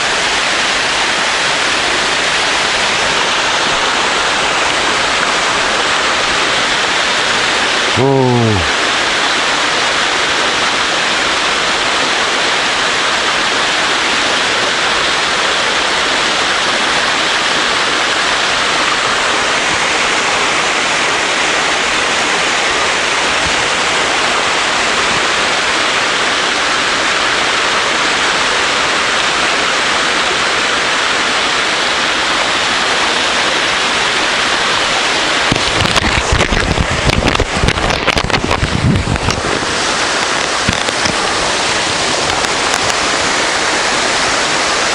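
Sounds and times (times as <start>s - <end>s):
waterfall rushing: 0.0s - 44.9s
low crackling thumps: 35.5s - 41.3s.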